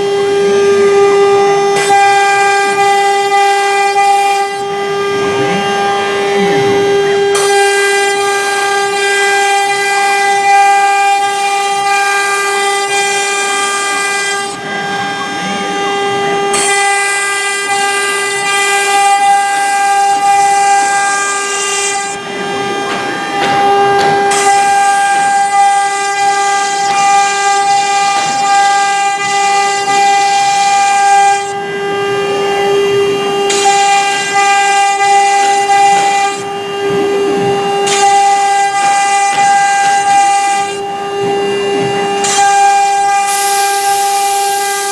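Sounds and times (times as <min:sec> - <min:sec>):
router spindle whining: 0:00.0 - 0:44.9
hiss of bit cutting wood: 0:16.5 - 0:31.6, 0:42.2 - 0:44.9.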